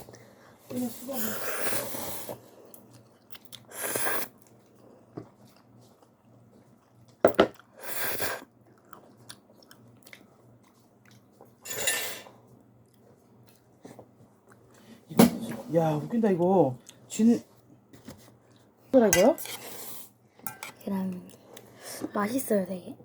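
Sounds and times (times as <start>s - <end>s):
person slurping noodles: 1.2s - 2.4s, 3.7s - 4.4s
quiet chewing: 2.6s - 3.7s, 4.4s - 7.8s, 8.5s - 11.6s, 12.4s - 15.0s, 16.8s - 17.1s.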